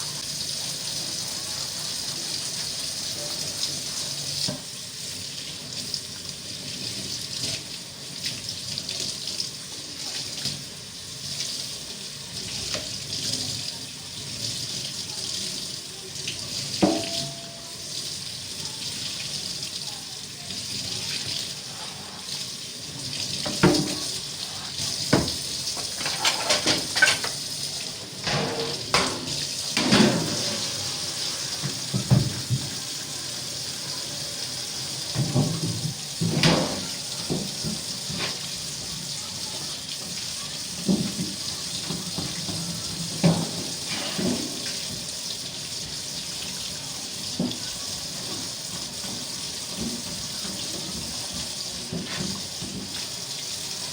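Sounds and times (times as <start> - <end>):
tap water running into sink: 0.0 - 53.9
knocks and clatter in sink: 16.8 - 17.5, 23.4 - 24.2, 25.1 - 27.4, 28.2 - 30.7, 31.6 - 32.8, 35.1 - 38.4, 40.8 - 45.1.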